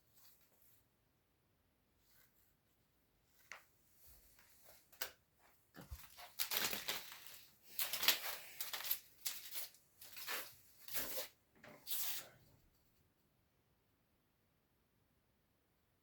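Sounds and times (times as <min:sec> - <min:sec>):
short crinkling rustling: 0:04.2 - 0:12.4.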